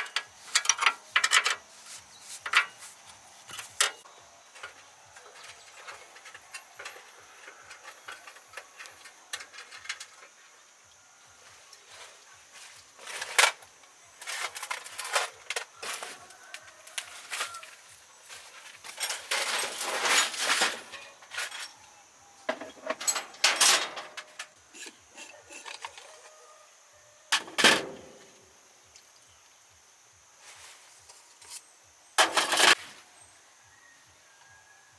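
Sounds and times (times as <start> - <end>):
clinks and scrapes of hand work: 0.0 - 10.5, 12.8 - 17.7, 18.7 - 21.8, 22.5 - 26.6, 31.0 - 32.8.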